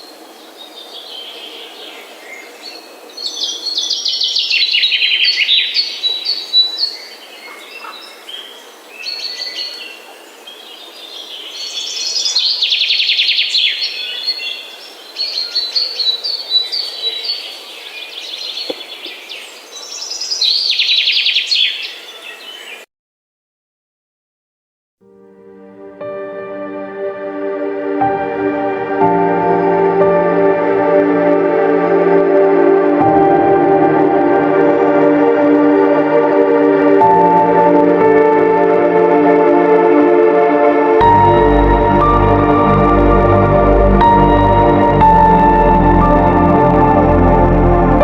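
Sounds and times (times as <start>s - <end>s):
songbirds chirping: 0.0s - 22.9s.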